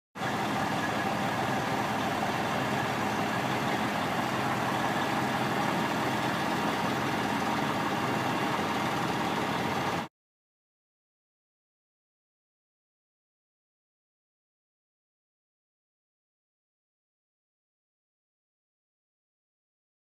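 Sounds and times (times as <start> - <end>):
diesel truck engine idling: 0.2 - 10.1.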